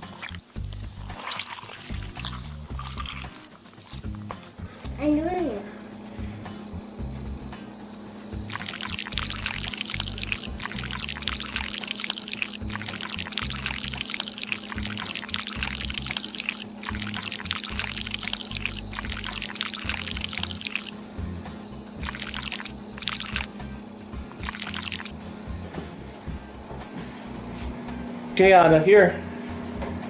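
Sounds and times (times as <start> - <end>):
crackly liquid pouring: 0.0 - 4.2, 8.3 - 25.3
background music: 0.0 - 30.0.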